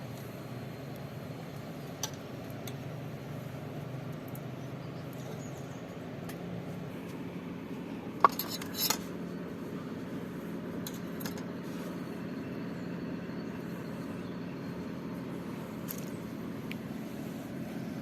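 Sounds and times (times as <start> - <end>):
utensils clinking on dishes: 8.2 - 9.1.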